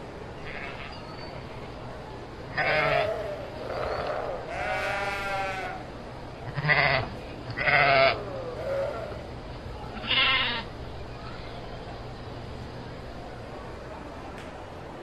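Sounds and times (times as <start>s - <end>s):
sheep bleating: 2.6s - 5.8s, 6.5s - 9.2s, 10.0s - 10.7s.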